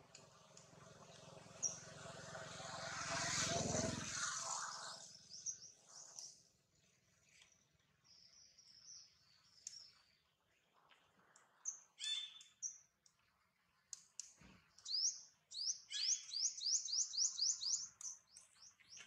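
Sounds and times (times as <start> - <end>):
low hum: 0.0 - 6.3
birds chirping: 0.1 - 2.0, 14.8 - 19.0
broad rushing noise: 1.2 - 5.4.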